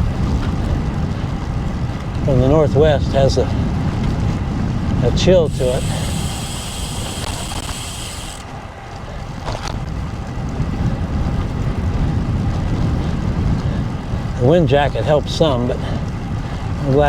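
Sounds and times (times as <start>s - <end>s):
road noise: 0.0s - 17.0s
wind buffeting microphone: 0.0s - 17.0s
high hiss: 5.5s - 8.4s.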